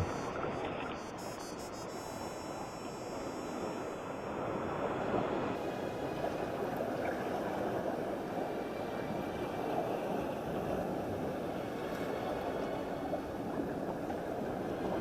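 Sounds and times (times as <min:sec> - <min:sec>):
ocean surf on rocky shore: 0:03.2 - 0:15.0.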